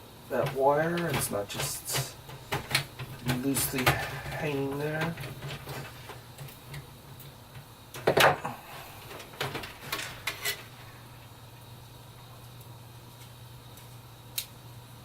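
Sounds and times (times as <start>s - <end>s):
fan clicks and knocks on case: 0.3s - 8.4s, 9.1s - 10.4s.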